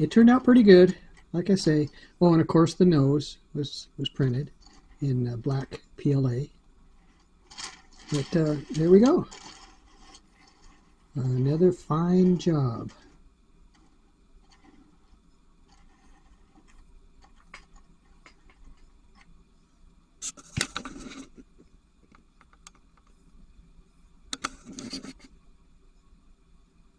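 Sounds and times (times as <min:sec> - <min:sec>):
rustling clatter: 0:06.9 - 0:11.6.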